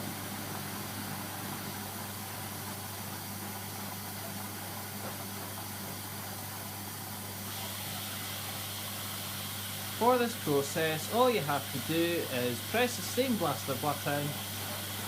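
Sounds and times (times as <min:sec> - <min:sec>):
steady hiss: 0:07.3 - 0:15.0.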